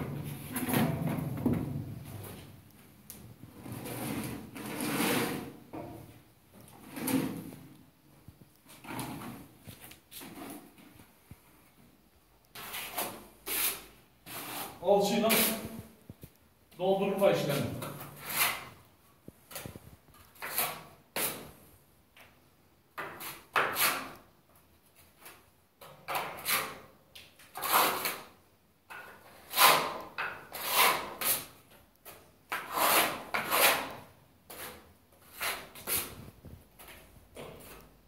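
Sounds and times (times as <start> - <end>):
trowel scraping plaster: 3.5 - 5.6, 12.6 - 15.8, 17.8 - 18.8, 20.3 - 21.6, 23.0 - 24.2, 25.3 - 36.2.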